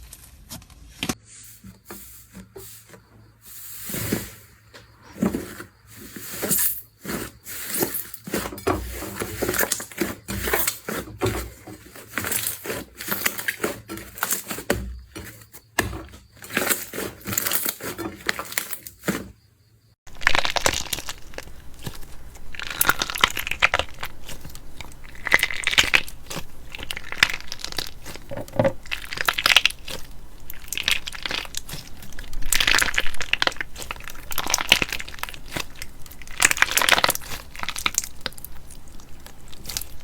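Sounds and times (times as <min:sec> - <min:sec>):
slime crackling and popping: 0:20.1 - 0:40.0.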